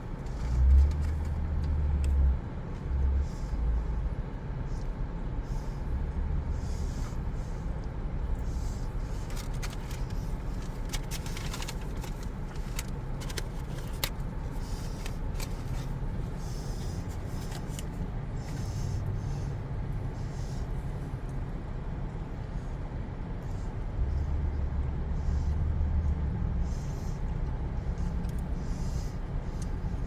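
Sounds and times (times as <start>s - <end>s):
steady low rumble: 0.0s - 30.0s
paper packaging rustling: 9.2s - 16.0s.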